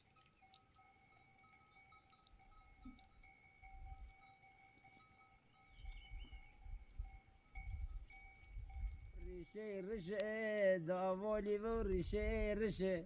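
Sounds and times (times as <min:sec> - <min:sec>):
faint animal bells clinking: 0:00.0 - 0:12.9
wind rumble on microphone: 0:05.8 - 0:09.4, 0:11.2 - 0:13.0.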